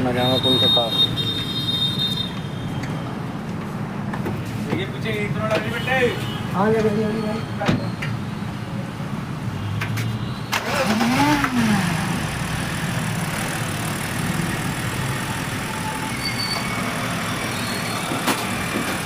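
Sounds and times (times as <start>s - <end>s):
car engine revving and idling: 10.6s - 15.8s.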